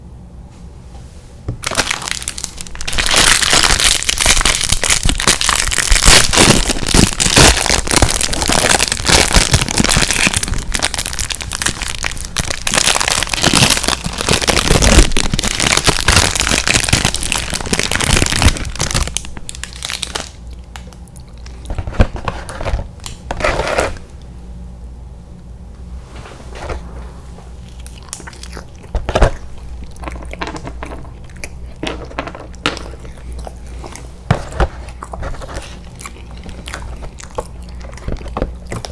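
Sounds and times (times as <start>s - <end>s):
plastic packaging crinkling: 1.6s - 24.0s, 27.6s - 38.9s.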